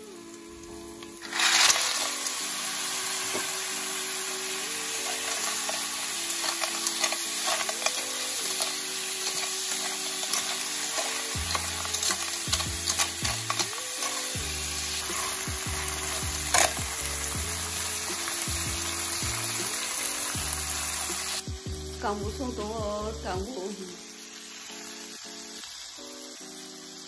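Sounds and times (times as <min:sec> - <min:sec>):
oil sizzling in a pan: 0:00.0 - 0:27.0
shells rattling under spatula: 0:01.2 - 0:02.2, 0:05.0 - 0:16.9.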